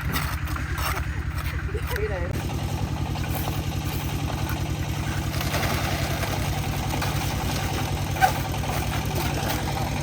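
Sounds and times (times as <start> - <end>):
concrete mixer engine chugging: 0.0 - 10.0.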